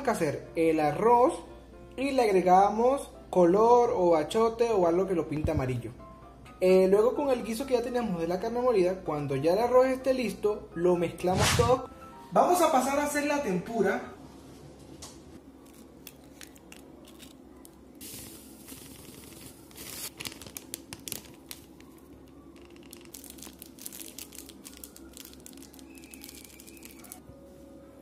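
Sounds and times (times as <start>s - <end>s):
ingredients rustling and crinkling: 15.5s - 27.2s.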